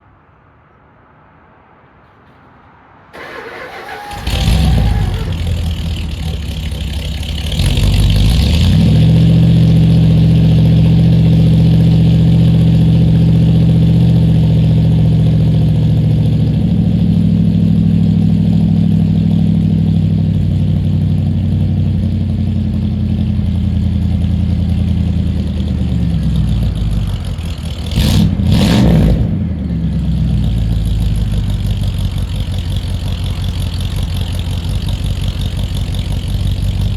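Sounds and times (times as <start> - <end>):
starter motor cranking: 3.2 - 8.2
car engine revving and idling: 3.2 - 36.9.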